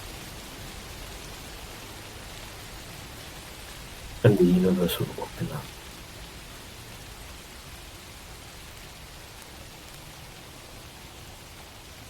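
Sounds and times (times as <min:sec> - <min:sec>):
steady background hiss: 0:00.0 - 0:06.0.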